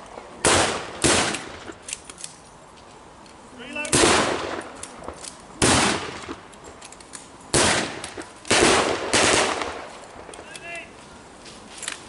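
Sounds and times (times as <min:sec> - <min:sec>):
blank gunshots with echo: 0:00.4 - 0:01.7, 0:03.9 - 0:04.7, 0:05.6 - 0:06.4, 0:07.5 - 0:10.4.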